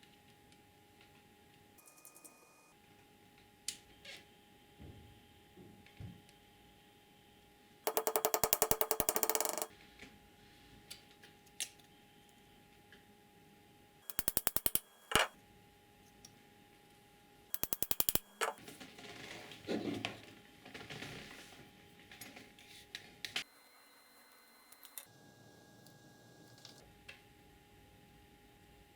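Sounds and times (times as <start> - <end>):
ratchet clicking: 7.9 - 9.7, 14.1 - 15.3, 17.6 - 18.6
handling and scraping noises: 18.4 - 23.4.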